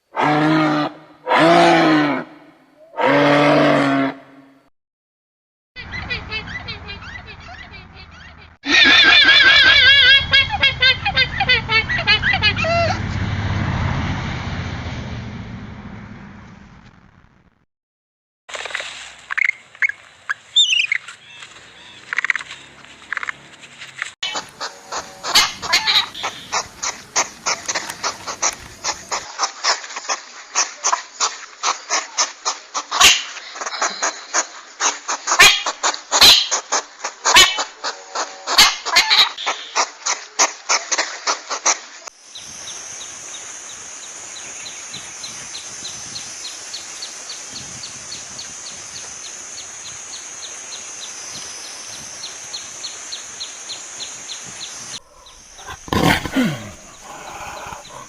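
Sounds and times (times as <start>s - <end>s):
rapid repeated animal calls: 24.2s - 41.9s, 55.0s - 58.0s.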